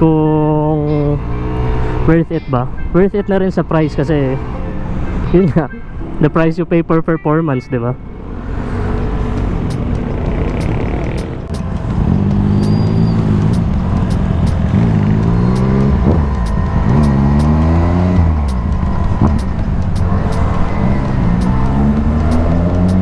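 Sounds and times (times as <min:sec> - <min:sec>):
scooter engine revving: 0:00.6 - 0:02.2, 0:08.4 - 0:23.0.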